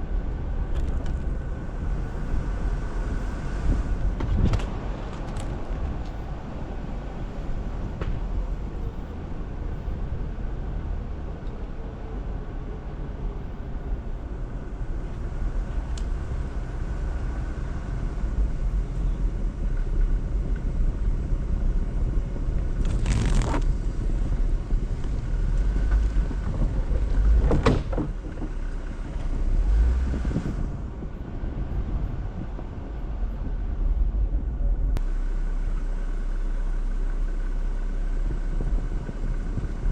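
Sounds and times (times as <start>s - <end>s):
engine and tyres rumbling: 0.0s - 39.9s
scrapes or crunches: 22.8s - 23.8s.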